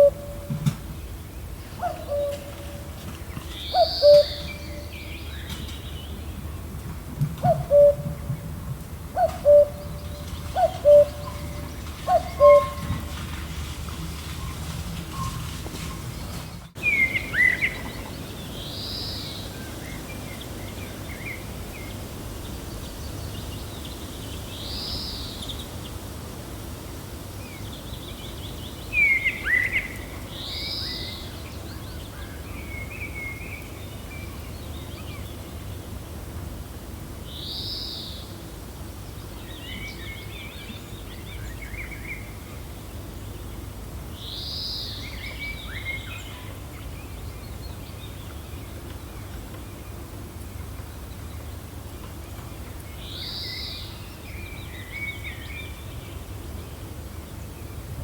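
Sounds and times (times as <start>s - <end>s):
birds chirping: 0.0s - 6.7s, 7.4s - 26.0s.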